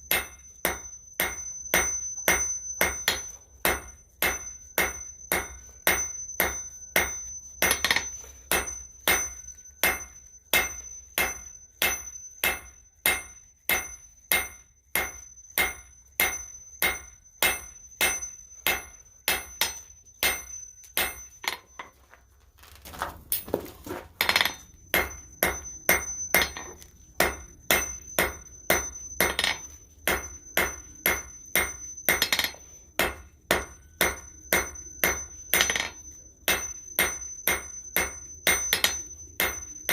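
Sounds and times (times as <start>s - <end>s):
hammer striking steel on anvil: 0.0s - 22.0s, 24.2s - 39.9s
high metallic ring: 0.0s - 22.2s, 24.2s - 39.9s.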